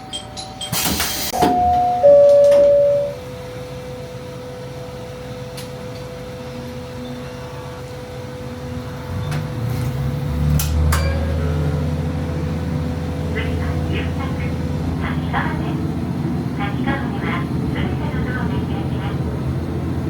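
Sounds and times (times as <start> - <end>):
diesel railcar engine idling: 0.0 - 9.7, 10.6 - 20.0
two-note chime: 1.4 - 3.3.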